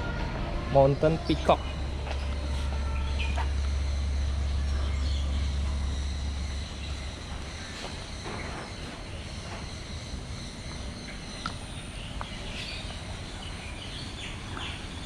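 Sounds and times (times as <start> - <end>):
high-pitched insect-like drone: 1.7 - 11.1.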